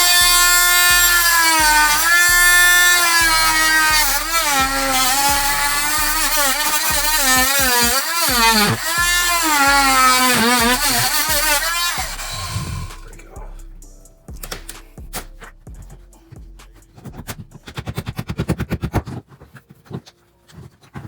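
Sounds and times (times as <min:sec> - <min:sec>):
power saw cutting wood: 0:00.0 - 0:13.2.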